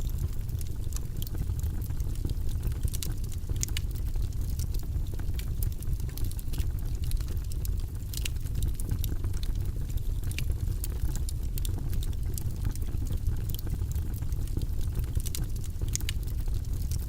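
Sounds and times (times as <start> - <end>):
low rumble of flames: 0.0 - 17.0
wood fire crackling: 0.0 - 17.0
logs popping and snapping: 3.0 - 3.9, 15.2 - 16.2.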